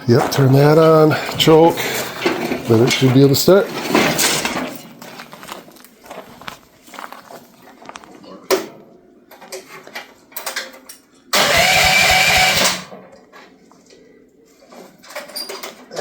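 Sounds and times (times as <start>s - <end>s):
engine cranking by starter: 11.4s - 13.0s.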